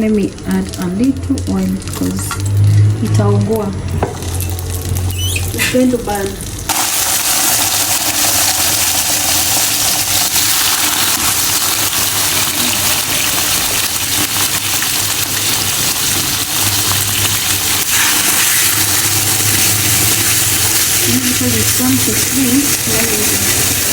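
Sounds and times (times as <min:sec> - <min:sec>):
steak sizzling in a pan: 0:06.7 - 0:23.9.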